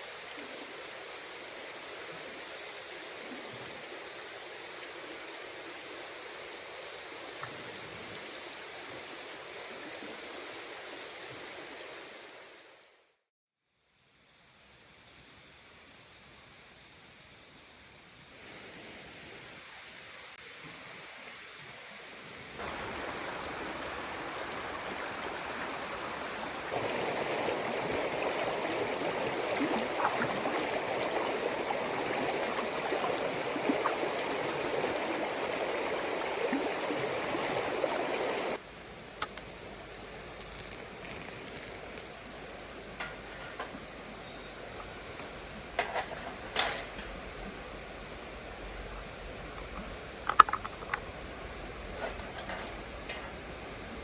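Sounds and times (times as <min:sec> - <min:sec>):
rushing water-like noise: 0:00.0 - 0:13.0, 0:17.1 - 0:54.0
small pops: 0:39.2 - 0:39.5.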